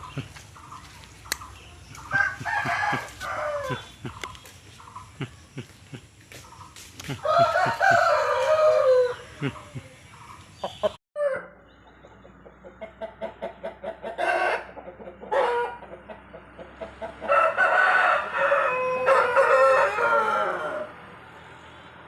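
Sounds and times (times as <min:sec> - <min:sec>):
rooster clucking: 0:00.0 - 0:21.0
rooster crowing: 0:02.1 - 0:03.9, 0:07.2 - 0:09.7, 0:11.2 - 0:11.5, 0:17.2 - 0:21.0.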